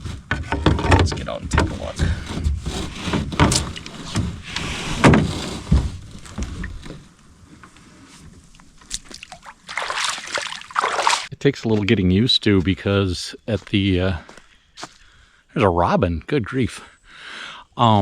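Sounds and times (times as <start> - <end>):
knocks and scrapes on canoe hull: 0.0 - 9.2.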